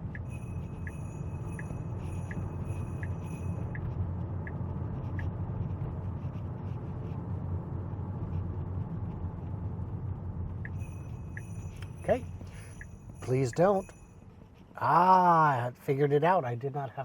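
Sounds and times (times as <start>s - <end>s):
turn signal ticking: 0.0s - 6.6s, 8.2s - 14.8s
road and tyre noise in car: 0.0s - 17.0s.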